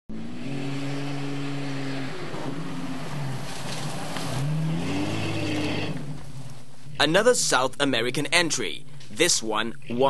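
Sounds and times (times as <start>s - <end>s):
engine revving: 0.1s - 6.6s.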